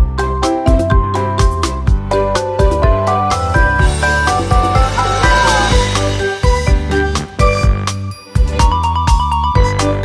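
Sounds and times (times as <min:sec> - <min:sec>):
upbeat electronic music: 0:02.5 - 0:08.6.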